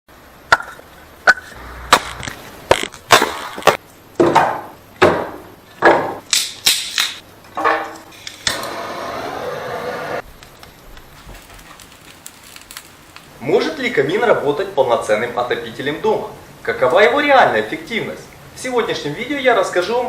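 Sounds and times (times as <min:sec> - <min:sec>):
sharp wooden knocks and cracks: 0:00.5 - 0:07.9.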